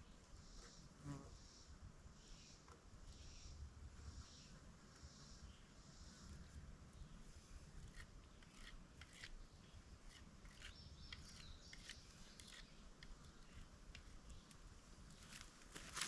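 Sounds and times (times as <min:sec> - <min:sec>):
knife scraping leaves from stalk: 0:07.8 - 0:09.4, 0:10.0 - 0:13.7.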